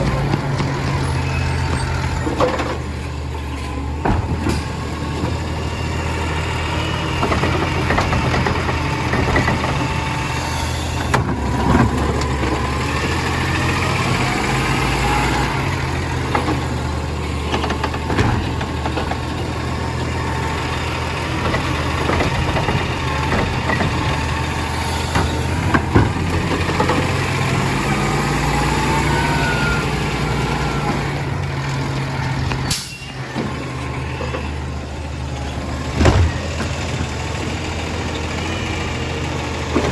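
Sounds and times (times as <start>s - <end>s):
truck engine and machinery: 0.0s - 39.9s
sharp knocks and clanks: 21.4s - 24.4s.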